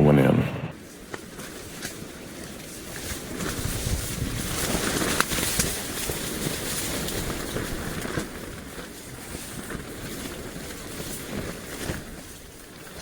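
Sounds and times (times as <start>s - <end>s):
tent fabric flapping: 0.8s - 13.0s
wind buffeting microphone: 3.3s - 5.3s.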